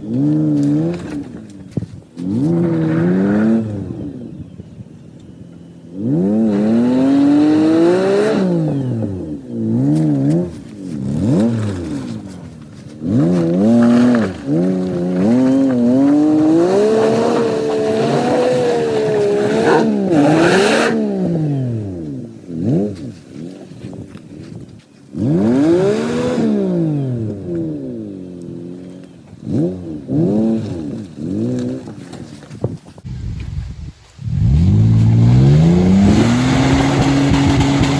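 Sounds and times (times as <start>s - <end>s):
pickup truck engine revving: 5.4s - 23.9s, 34.2s - 37.9s.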